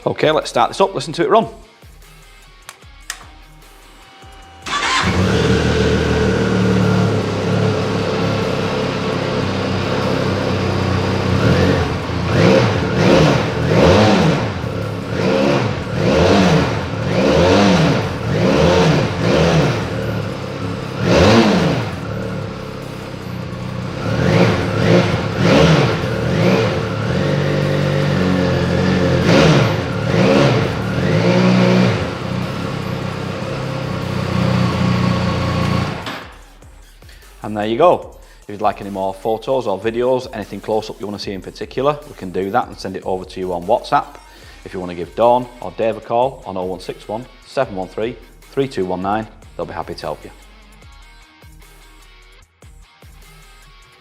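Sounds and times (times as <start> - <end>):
motorcycle engine revving: 4.6 - 36.4.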